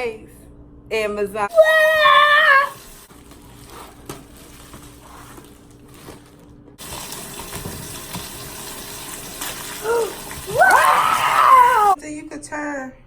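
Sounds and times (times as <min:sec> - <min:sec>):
running water: 0:06.8 - 0:12.0.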